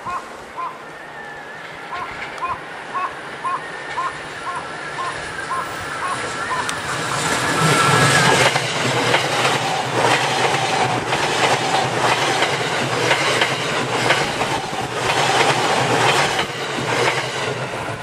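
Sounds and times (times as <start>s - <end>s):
train wheels rumbling on rails: 1.5s - 18.0s
clickety-clack of wheels: 5.0s - 18.0s.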